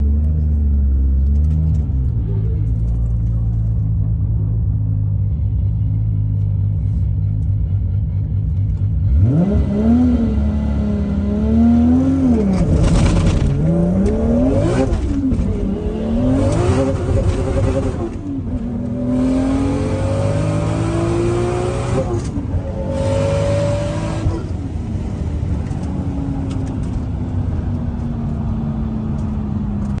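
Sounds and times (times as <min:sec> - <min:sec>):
car engine revving: 0:07.6 - 0:25.8.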